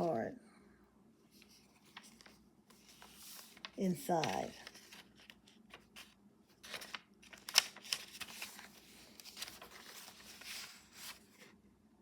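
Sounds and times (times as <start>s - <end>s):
paper rustling: 1.3s - 11.6s.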